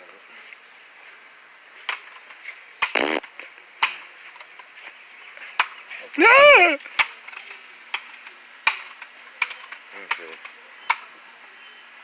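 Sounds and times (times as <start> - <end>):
crickets chirping: 0.0 - 12.0
buzzy burst: 2.9 - 3.2.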